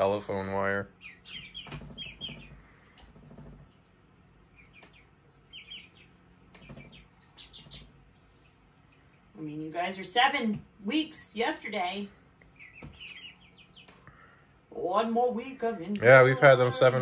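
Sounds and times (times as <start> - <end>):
chicks peeping: 0.9 - 10.0, 12.4 - 14.4.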